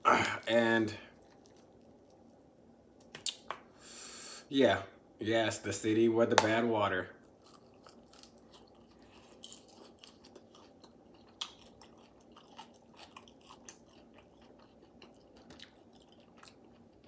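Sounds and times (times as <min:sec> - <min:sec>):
small crunches: 0:00.1 - 0:02.2
person chewing chicken wings: 0:07.3 - 0:17.0.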